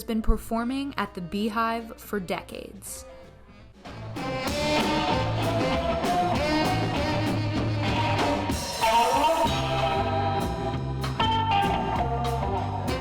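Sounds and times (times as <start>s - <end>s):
guitar: 0.0s - 13.0s
jazz band playing: 0.7s - 13.0s
drums: 1.0s - 13.0s
bass line: 3.9s - 13.0s.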